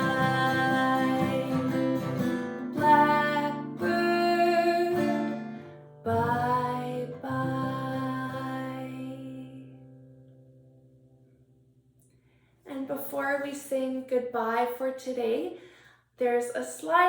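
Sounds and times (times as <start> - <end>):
acoustic guitar chords ringing: 0.0 - 11.9.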